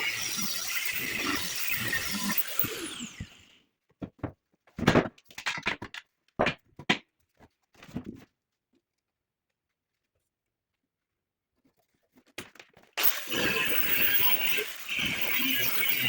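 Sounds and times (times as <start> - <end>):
power tool spinning down: 0.0 - 3.6, 13.0 - 16.0.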